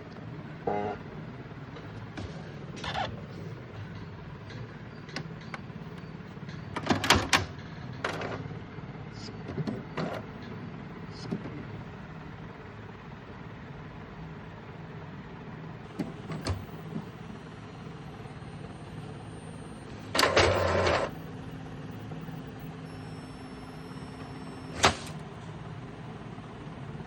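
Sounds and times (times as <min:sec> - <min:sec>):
printer motor whirr: 0:01.5 - 0:11.4, 0:15.8 - 0:27.0
printer clicks: 0:06.7 - 0:08.4, 0:15.9 - 0:17.1, 0:19.8 - 0:21.1, 0:22.4 - 0:25.3
steady low hum: 0:07.5 - 0:27.0.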